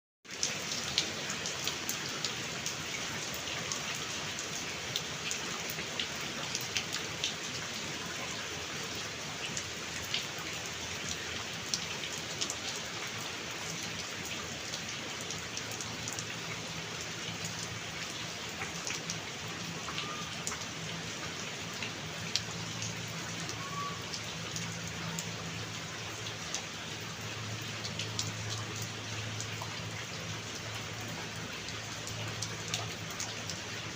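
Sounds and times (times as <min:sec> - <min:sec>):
steady rain falling: 0:00.2 - 0:33.9
raindrops ticking: 0:09.5 - 0:33.9.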